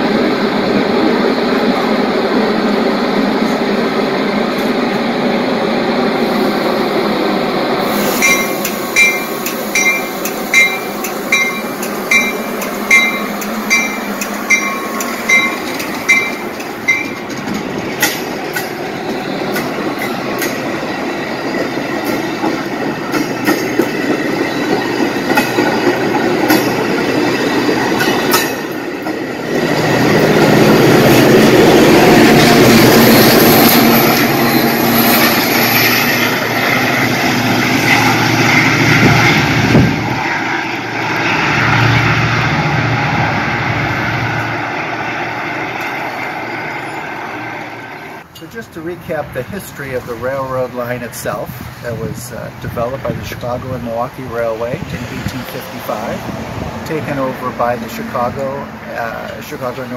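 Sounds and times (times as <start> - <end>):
diesel locomotive engine: 0.0 - 59.9
train wheels clacking on rails: 7.8 - 42.0
crossing bell dinging: 8.2 - 29.2.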